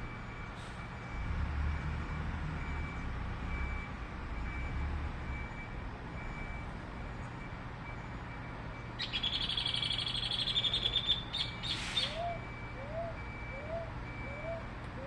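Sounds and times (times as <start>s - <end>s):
low short bird call: 9.0s - 12.4s.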